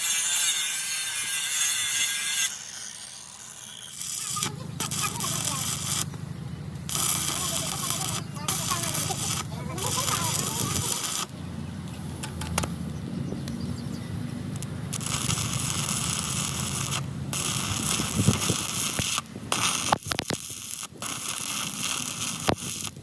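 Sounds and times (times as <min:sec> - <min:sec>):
crackling hiss of metalworking: 0:00.0 - 0:12.8, 0:14.2 - 0:23.0
sharp metal clicks and knocks: 0:12.2 - 0:12.8.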